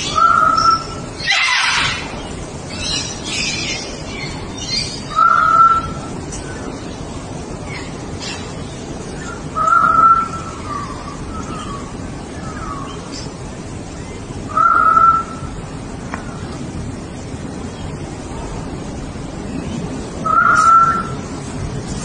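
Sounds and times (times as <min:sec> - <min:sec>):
bird calling: 0:00.0 - 0:07.0, 0:07.6 - 0:16.6, 0:19.4 - 0:21.4
steady background noise: 0:00.0 - 0:22.0.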